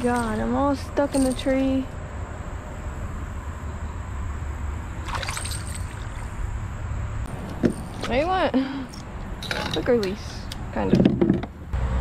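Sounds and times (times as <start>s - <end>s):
moving water: 4.8s - 6.8s
water splashing: 5.0s - 6.5s.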